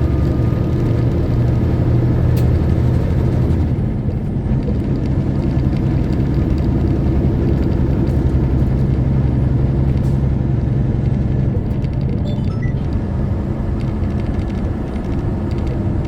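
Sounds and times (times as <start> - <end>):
diesel truck engine running: 0.0 - 16.0
road noise rumble: 0.0 - 16.0.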